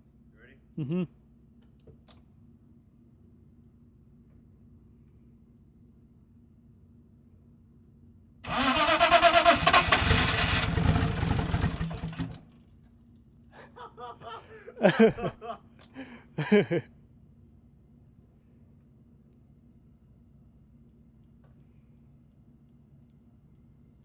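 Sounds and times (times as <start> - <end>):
car engine cranking on starter: 8.4 - 12.5
voices and laughter: 13.6 - 15.7.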